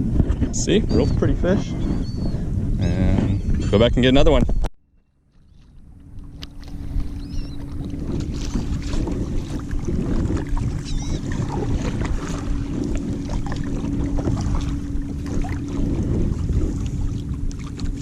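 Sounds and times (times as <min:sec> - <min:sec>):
wind on microphone: 0:00.0 - 0:04.7, 0:05.4 - 0:18.0
steady low hum: 0:00.0 - 0:18.0
seabirds calling: 0:00.7 - 0:18.0
water rushing along hull: 0:05.3 - 0:18.0.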